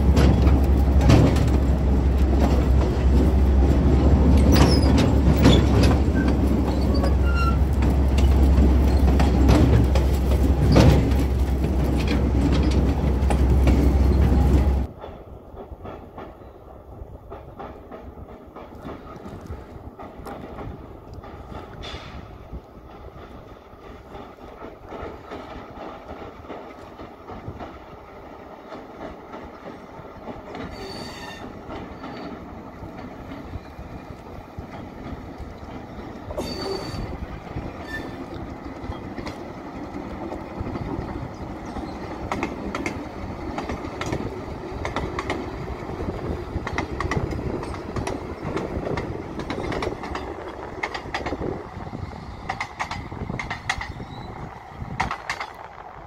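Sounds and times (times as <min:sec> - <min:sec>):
wheels clicking over rails: 0:00.0 - 0:55.7
train running past: 0:00.0 - 0:56.0
wheel squeals: 0:04.4 - 0:11.2, 0:30.6 - 0:32.4, 0:35.9 - 0:39.2, 0:41.3 - 0:42.2.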